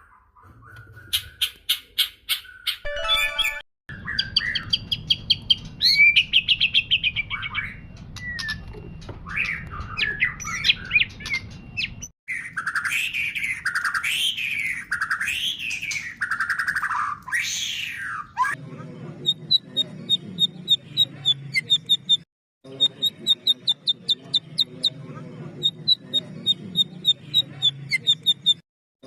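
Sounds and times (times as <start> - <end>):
bird singing trills and whistles: 0.4 - 18.6.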